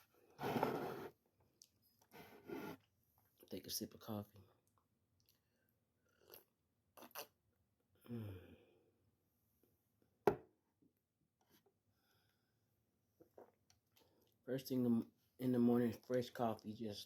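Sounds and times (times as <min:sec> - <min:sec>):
person sipping hot coffee: 0:06.1 - 0:07.4
person humming: 0:08.1 - 0:08.4.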